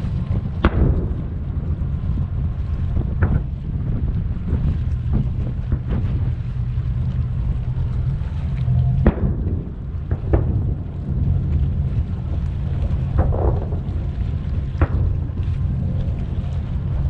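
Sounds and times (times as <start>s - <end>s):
distant firework booms: 0.0s - 6.7s, 8.8s - 15.8s
steady low rumble: 0.0s - 17.0s.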